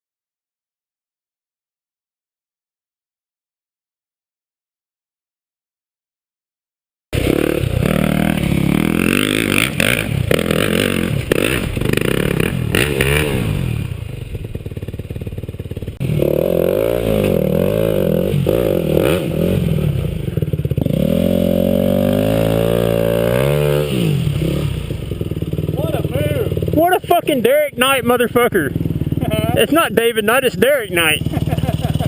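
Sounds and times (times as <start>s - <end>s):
dirt bike engine revving: 7.2s - 32.0s.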